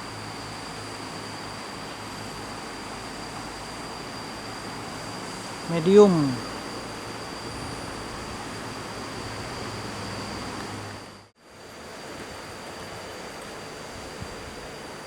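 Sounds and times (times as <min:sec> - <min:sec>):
insects droning: 0:00.0 - 0:15.0
steady noise haze: 0:00.0 - 0:15.0.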